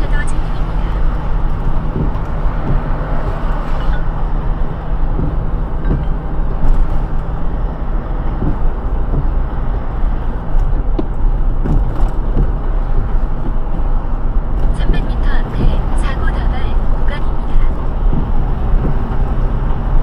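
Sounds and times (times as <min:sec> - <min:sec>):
low engine hum: 0:00.0 - 0:20.0
tyre noise on wet road: 0:00.0 - 0:20.0.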